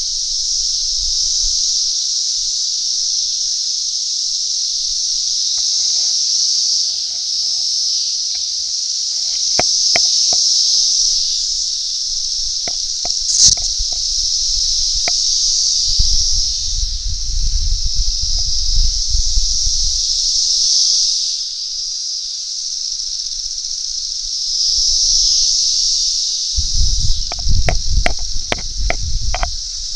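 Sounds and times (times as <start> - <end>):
cicadas droning: 0.0 - 29.9
scattered clicks: 9.3 - 10.4, 12.6 - 14.2, 27.2 - 29.5.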